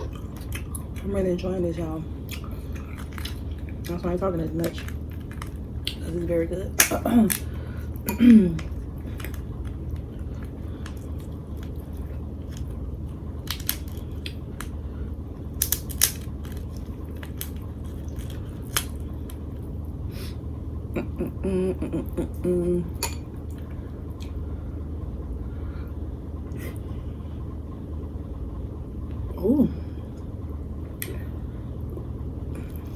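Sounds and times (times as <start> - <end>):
chewing and mouth sounds: 0.0 - 1.1, 2.2 - 14.8, 15.4 - 19.6
person humming: 21.0 - 23.0.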